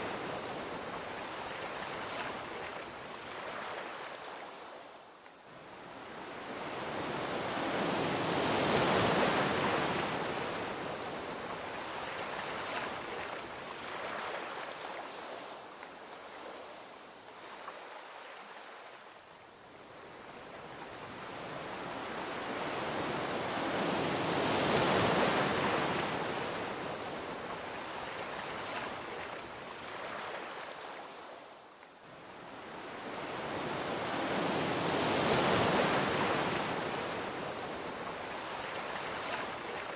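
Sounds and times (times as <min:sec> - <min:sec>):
ocean waves washing onto beach: 0:00.0 - 0:39.9.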